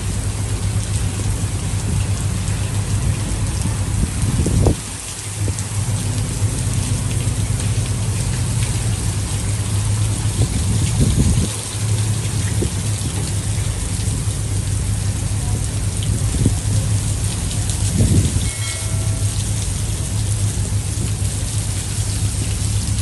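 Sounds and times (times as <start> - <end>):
heavy rain falling: 0.0 - 23.0
low rumble: 0.0 - 23.0.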